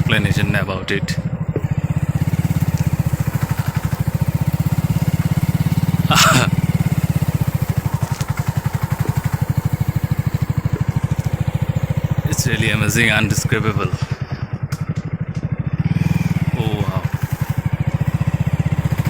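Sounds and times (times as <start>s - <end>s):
vehicle engine low throb: 0.0s - 19.0s.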